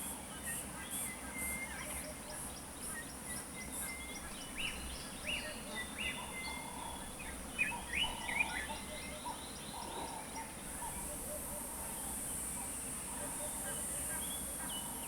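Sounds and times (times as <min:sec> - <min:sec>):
wild birds calling: 0:02.0 - 0:14.9.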